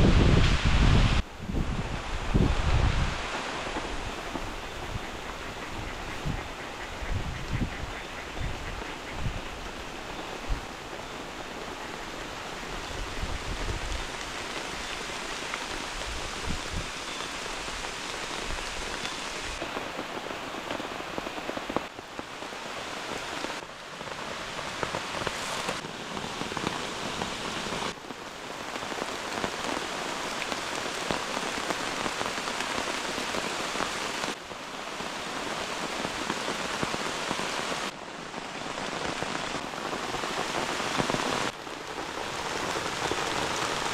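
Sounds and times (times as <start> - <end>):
heavy rain pouring: 0.0 - 43.9.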